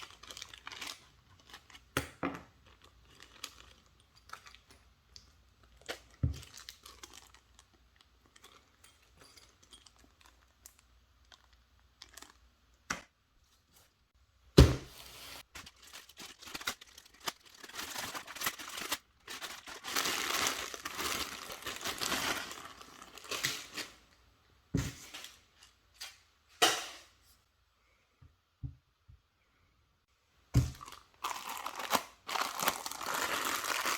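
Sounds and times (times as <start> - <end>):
plastic and paper crinkling: 0.0 - 4.8, 5.6 - 8.8, 9.4 - 12.5, 14.9 - 24.0, 30.7 - 33.9.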